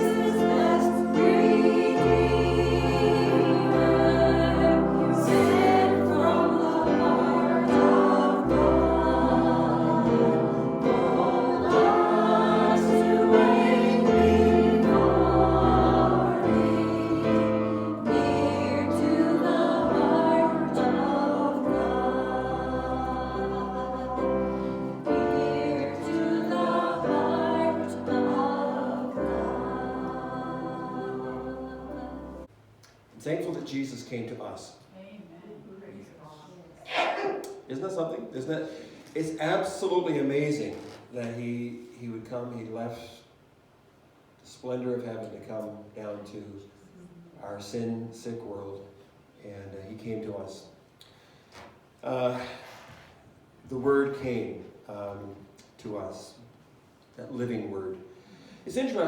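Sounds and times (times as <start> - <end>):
group singing gospel song: 0.0 - 32.5, 36.8 - 37.6.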